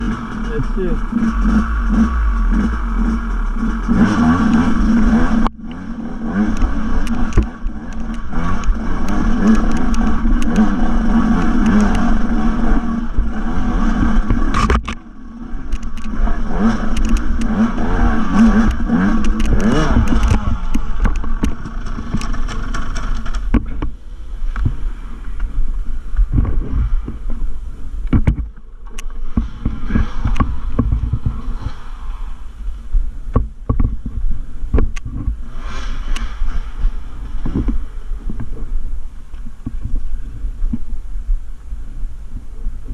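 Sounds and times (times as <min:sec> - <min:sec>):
dirt bike engine revving: 0:00.0 - 0:23.6, 0:29.1 - 0:32.5
bike knocking and rattling: 0:00.0 - 0:31.9, 0:33.0 - 0:41.0
wind: 0:00.0 - 0:42.9.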